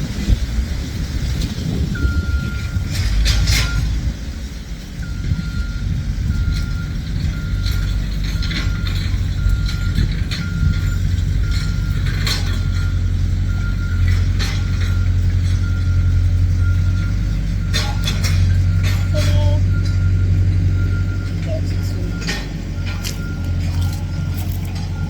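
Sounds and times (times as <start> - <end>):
low rumble: 0.0 - 25.0
measuring wheel beeping: 5.0 - 25.0.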